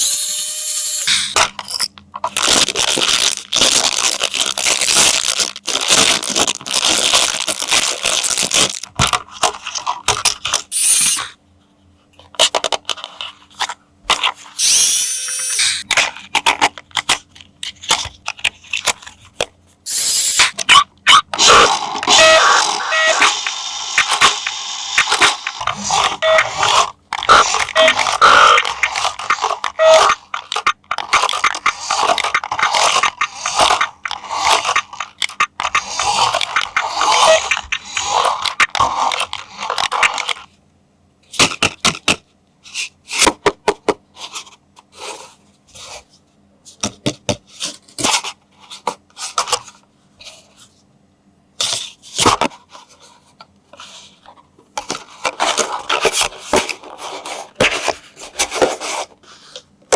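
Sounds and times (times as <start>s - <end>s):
packaging rustling and scraping: 0.0s - 11.3s, 51.8s - 59.7s.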